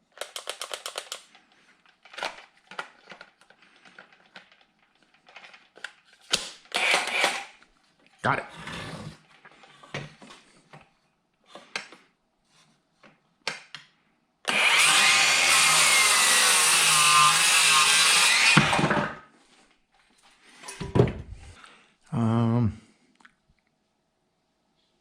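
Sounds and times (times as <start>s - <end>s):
power saw cutting wood: 6.8s - 7.5s, 14.5s - 19.1s.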